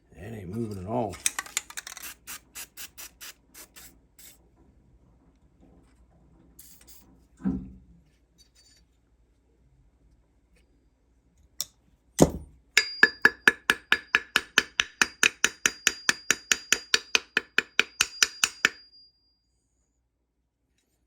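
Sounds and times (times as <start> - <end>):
hammer striking metal: 12.2 - 19.0.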